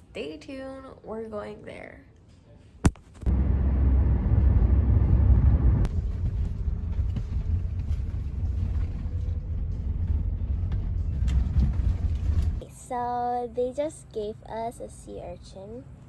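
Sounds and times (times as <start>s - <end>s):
moving vehicle rumble: 3.2s - 13.6s.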